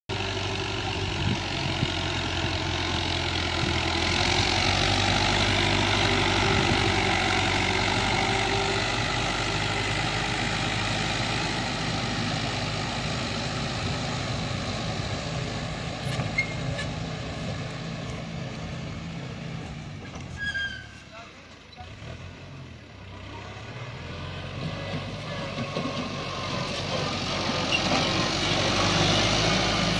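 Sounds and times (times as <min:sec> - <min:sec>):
tractor engine running: 0:00.1 - 0:29.9.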